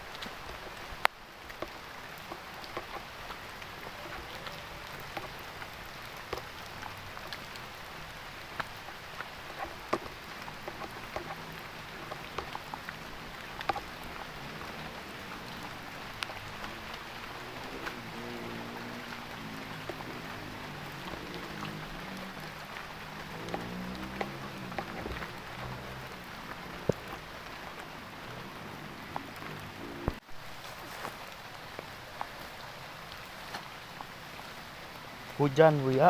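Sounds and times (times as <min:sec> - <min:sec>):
heavy rain falling: 0:00.0 - 0:36.0
raindrops ticking: 0:00.0 - 0:36.0.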